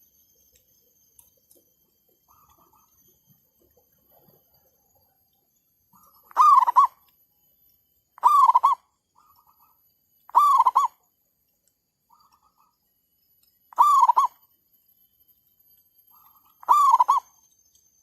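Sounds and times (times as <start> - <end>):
dove cooing: 2.3 - 2.9, 6.0 - 7.0, 8.2 - 9.6, 10.3 - 11.0, 13.7 - 14.4, 16.6 - 17.3.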